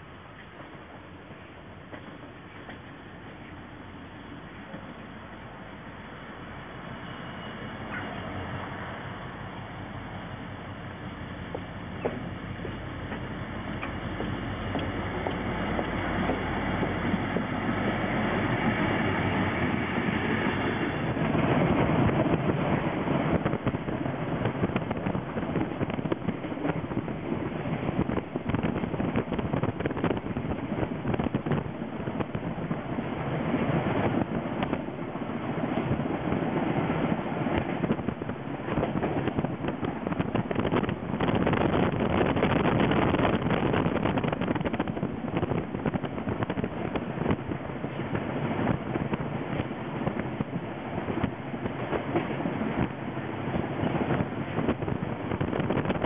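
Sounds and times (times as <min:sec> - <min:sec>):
train wheels clicking on track: 0:00.0 - 0:05.0, 0:11.0 - 0:56.0
diesel locomotive engine: 0:00.0 - 0:56.0
wind on microphone: 0:13.8 - 0:56.0.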